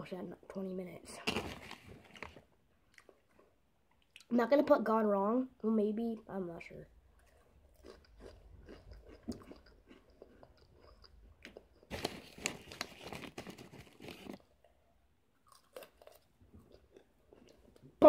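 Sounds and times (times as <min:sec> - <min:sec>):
crunching and chewing snacks: 0:07.2 - 0:14.8, 0:15.4 - 0:18.0.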